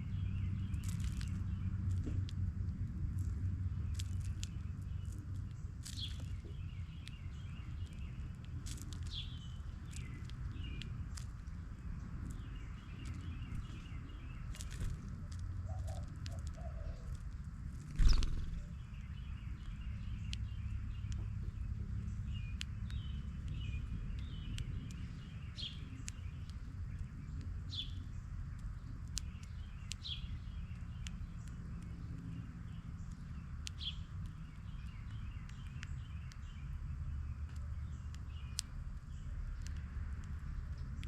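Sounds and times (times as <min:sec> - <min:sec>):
steady low rumble: 0:00.0 - 0:41.0
birds chirping: 0:03.8 - 0:17.3, 0:17.9 - 0:41.0.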